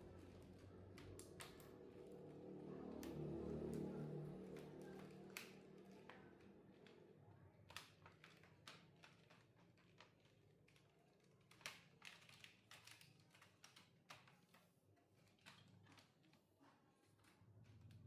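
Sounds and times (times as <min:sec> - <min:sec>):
light clicks of small objects: 0:00.1 - 0:03.9.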